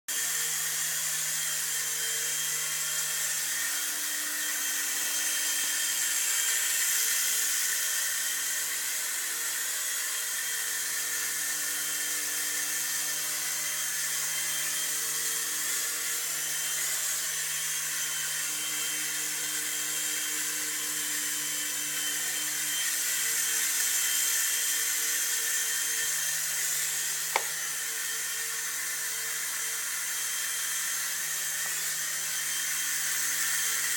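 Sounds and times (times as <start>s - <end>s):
toy helicopter motor whine: 0.1s - 33.9s
sharp click: 27.3s - 27.6s.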